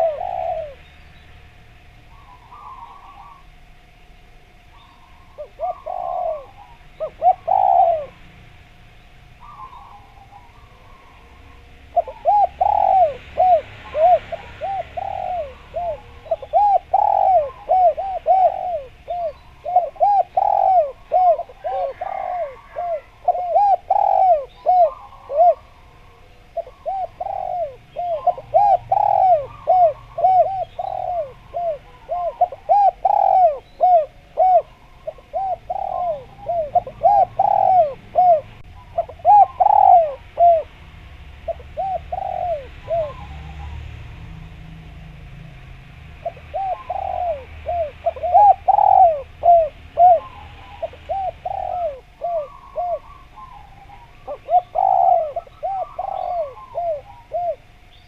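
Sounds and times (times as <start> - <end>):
dove cooing: 0.0 - 44.4, 46.1 - 58.0
faint small bird chirps: 2.1 - 3.5, 4.7 - 7.9.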